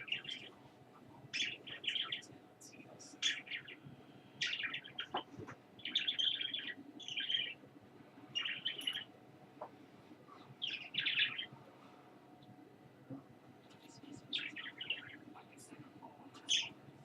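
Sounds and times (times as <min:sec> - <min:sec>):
small bird chirping: 0:00.0 - 0:00.6, 0:01.3 - 0:07.6, 0:08.3 - 0:09.7, 0:10.3 - 0:11.5, 0:13.6 - 0:16.8.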